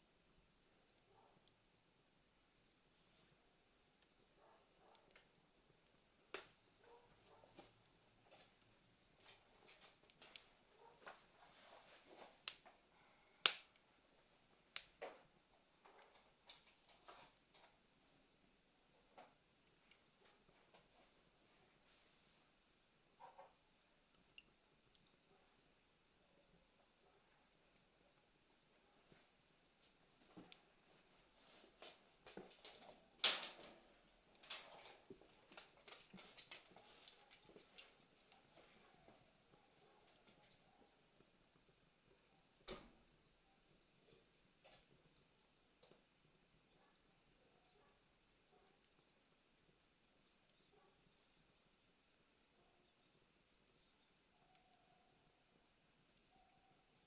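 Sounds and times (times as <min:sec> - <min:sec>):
campfire crackling and popping: 0:05.0 - 0:06.8, 0:12.4 - 0:13.9, 0:14.5 - 0:17.6, 0:31.8 - 0:39.0.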